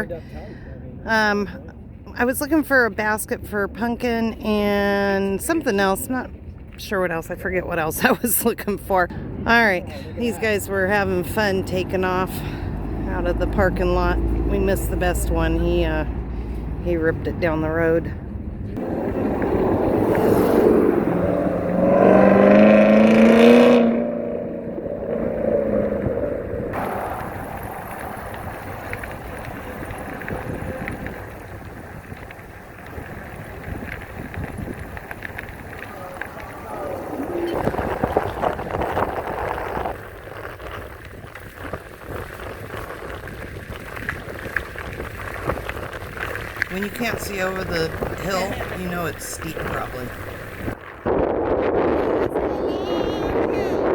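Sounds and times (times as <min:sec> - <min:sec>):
bike tyres rumbling on road: 0:00.0 - 0:53.9
wind on microphone: 0:10.2 - 0:53.9
car engine accelerating past: 0:18.6 - 0:31.6, 0:35.0 - 0:40.0.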